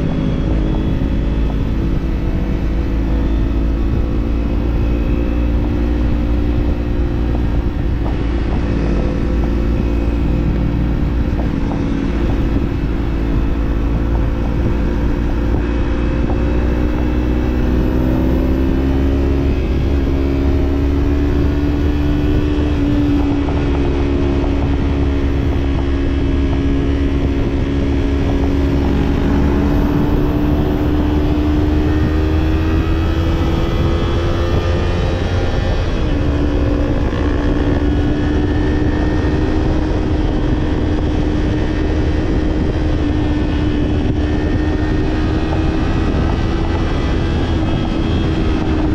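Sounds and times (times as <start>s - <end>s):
motorcycle engine cruising: 0.0s - 48.9s
road noise: 0.0s - 48.9s
rushing wind: 0.0s - 48.9s.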